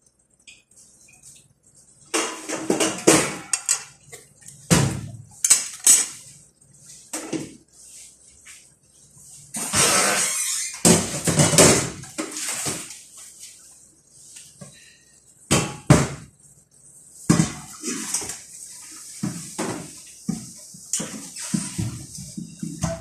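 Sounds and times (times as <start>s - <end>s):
pots and pans clattering: 2.1s - 6.2s, 9.6s - 12.9s, 19.2s - 23.0s.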